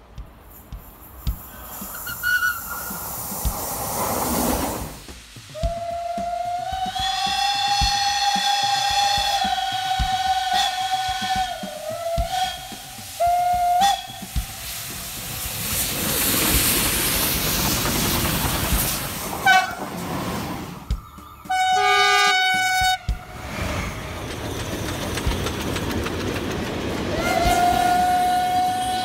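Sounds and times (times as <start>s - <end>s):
train passing: 0.0s - 29.0s
steam locomotive whistle: 1.8s - 3.2s, 4.1s - 15.0s, 18.8s - 24.2s, 27.1s - 29.0s
train horn blast: 5.6s - 14.4s, 19.4s - 19.9s, 21.5s - 23.4s, 27.1s - 29.0s.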